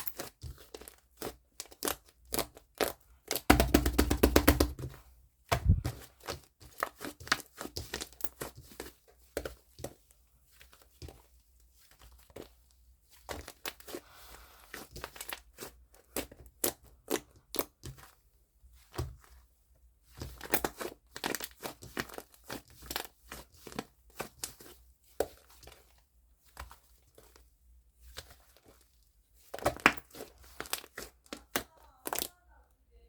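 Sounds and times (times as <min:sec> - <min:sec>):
foam slime squished by hand: 0:00.3 - 0:09.7, 0:20.0 - 0:32.3.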